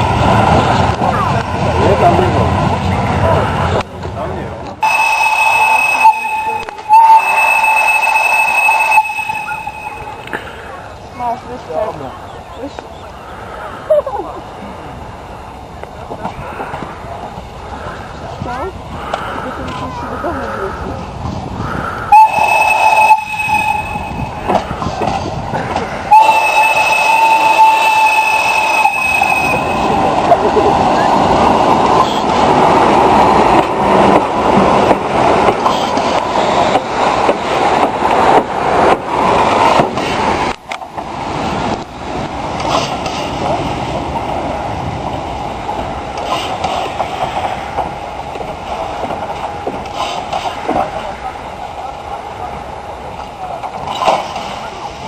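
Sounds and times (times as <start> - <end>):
steam train rumbling on track: 0.0 - 55.0
steam locomotive whistle: 4.8 - 10.4, 22.1 - 24.6, 26.1 - 30.1.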